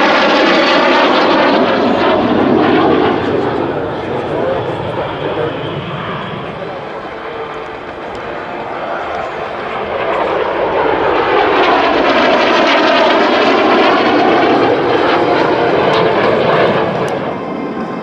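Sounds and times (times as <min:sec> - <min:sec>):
jet engine passing by: 0:00.0 - 0:18.0.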